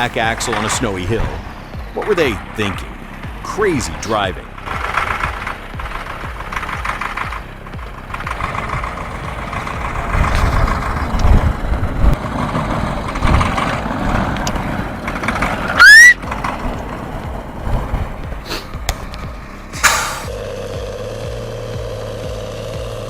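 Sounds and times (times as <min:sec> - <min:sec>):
heavy truck engine droning: 0:00.0 - 0:23.0
loud rising squeal: 0:15.7 - 0:17.2.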